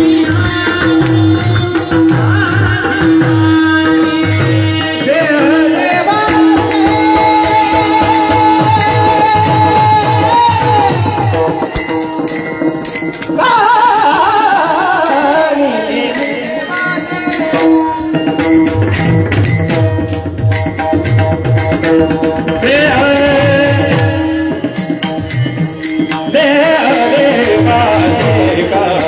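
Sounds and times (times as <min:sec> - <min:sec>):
person singing devotional song: 0:00.0 - 0:20.6, 0:22.4 - 0:29.0
drum strokes: 0:00.0 - 0:29.0.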